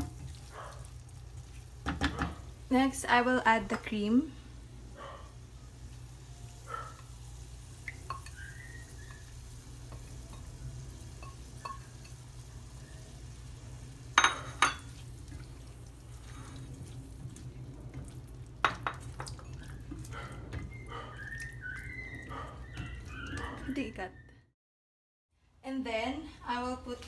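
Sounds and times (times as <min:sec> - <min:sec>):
utensil scraping and clinking on pan: 0:11.2 - 0:12.2.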